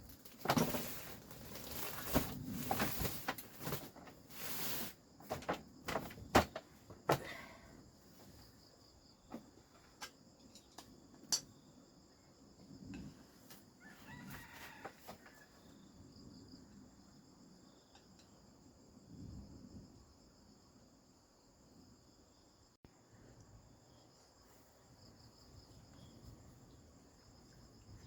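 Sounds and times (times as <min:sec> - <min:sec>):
insects chirring: 0:00.0 - 0:28.0
rooster crowing: 0:13.8 - 0:15.7.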